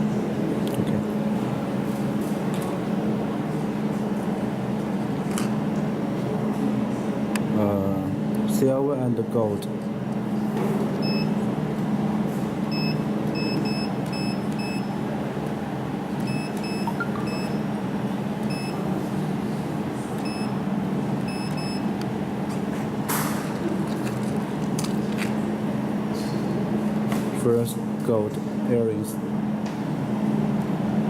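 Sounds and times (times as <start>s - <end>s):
laser welding machine humming: 10.1s - 27.1s
short high beeps: 16.3s - 17.7s.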